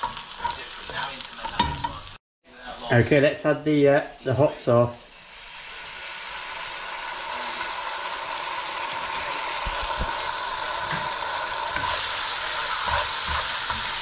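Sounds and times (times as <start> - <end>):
onions sizzling in a frying pan: 0.0 - 2.2, 5.1 - 14.0.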